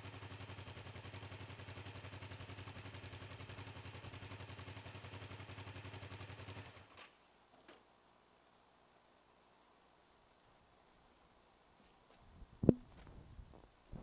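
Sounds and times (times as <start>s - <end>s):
motorcycle engine idling: 0.0s - 7.0s.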